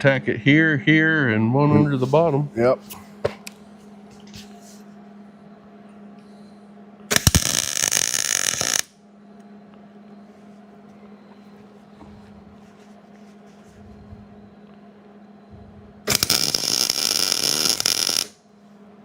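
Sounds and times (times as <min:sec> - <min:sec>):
low hum: 0:00.0 - 0:16.7
welding arc crackling: 0:07.1 - 0:08.9, 0:16.1 - 0:18.4.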